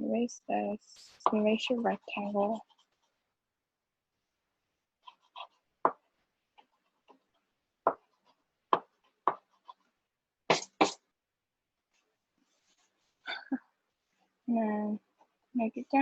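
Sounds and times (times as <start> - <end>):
taps and knocks on hard surface: 5.8 - 6.0, 7.8 - 8.1, 8.7 - 9.5.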